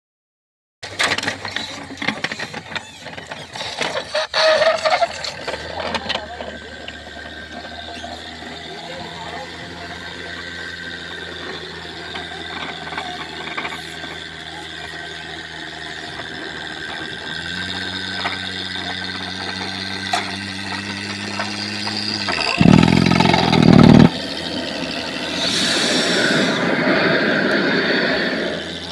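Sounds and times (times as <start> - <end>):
engine running: 0.8 - 28.9
hissing blast: 22.4 - 28.9
loud rush: 22.6 - 28.9.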